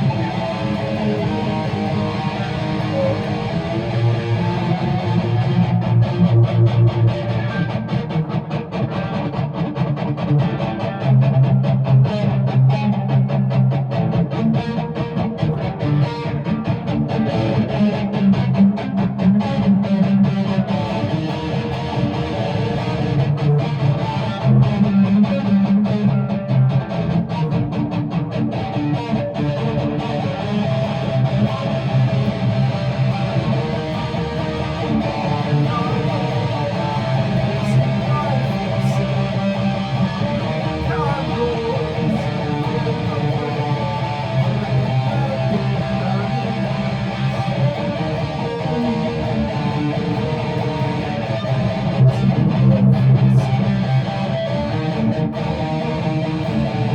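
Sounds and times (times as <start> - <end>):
guitar strumming chords: 0.0 - 56.9.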